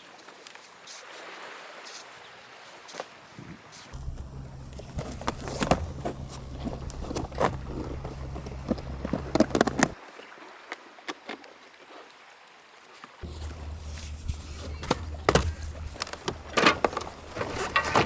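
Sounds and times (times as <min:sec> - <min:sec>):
plastic canoe panels clicking: 0:04.0 - 0:10.0, 0:13.2 - 0:18.0
steady low rumble: 0:13.2 - 0:18.0.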